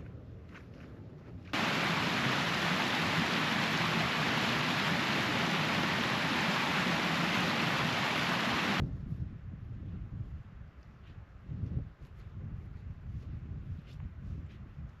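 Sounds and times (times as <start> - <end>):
heavy rain falling: 1.6 - 8.8.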